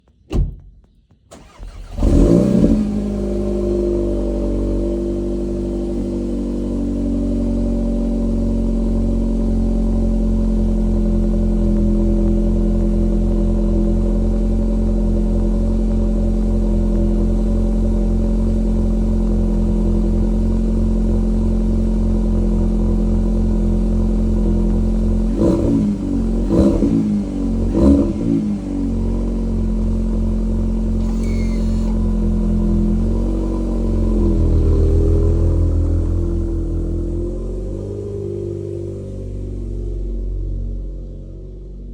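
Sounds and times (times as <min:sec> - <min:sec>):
car engine starting and idling: 0:00.3 - 0:41.9
engine revving blips: 0:01.3 - 0:04.9, 0:25.3 - 0:29.4, 0:30.8 - 0:39.5.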